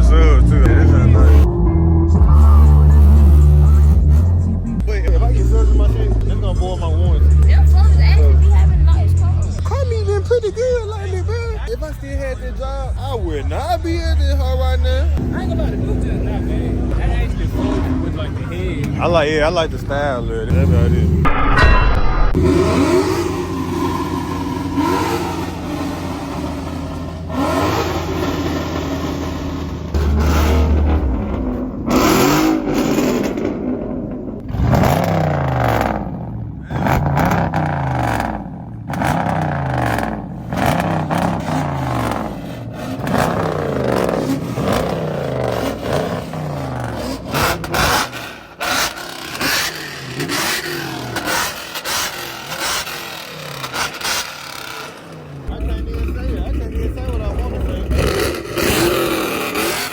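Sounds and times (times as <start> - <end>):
car engine revving: 0.0 - 59.9
loud sudden noises: 21.2 - 36.0.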